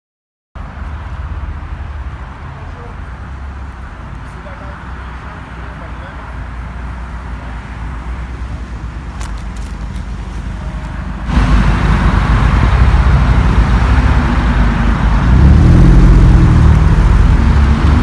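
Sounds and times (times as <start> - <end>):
car engine rumbling: 0.6 - 18.0.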